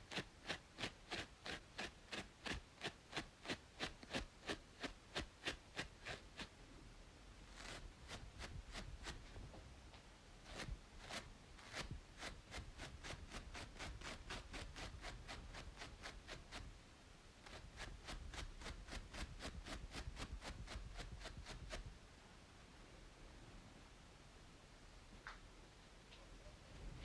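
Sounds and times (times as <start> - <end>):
scratching on braided scalp: 0.0 - 6.5, 7.5 - 9.6, 10.4 - 16.8, 17.4 - 21.9.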